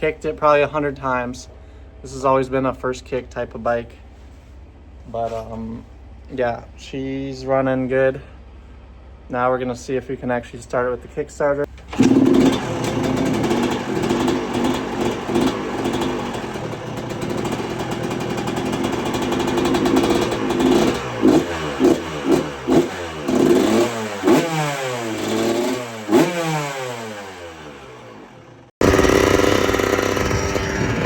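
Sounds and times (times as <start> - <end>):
dirt bike engine revving: 11.9 - 31.0.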